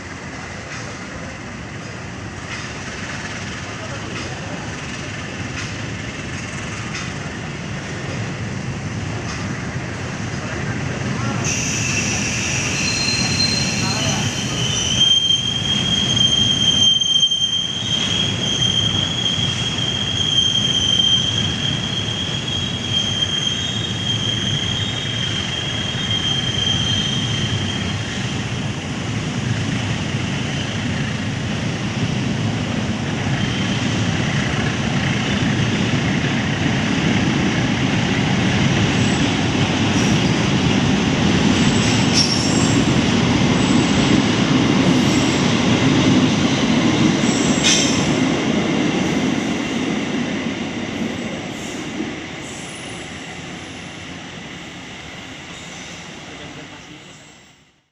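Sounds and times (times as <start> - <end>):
train wheels rumbling on rails: 0.0 - 57.4
high-pitched wheel squeal: 11.5 - 28.2.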